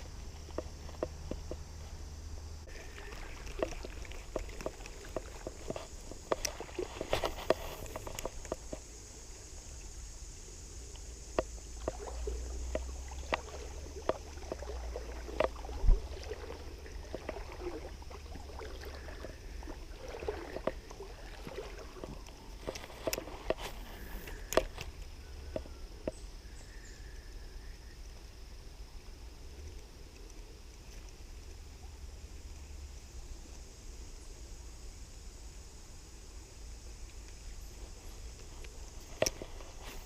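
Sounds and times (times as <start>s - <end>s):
creek water splashing: 0.0s - 26.5s, 35.8s - 40.0s.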